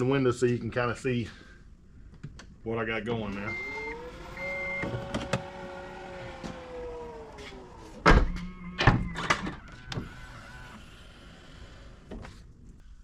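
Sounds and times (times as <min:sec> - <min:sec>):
power window motor whirring: 0:03.5 - 0:12.1
knocks and thuds: 0:08.0 - 0:09.6.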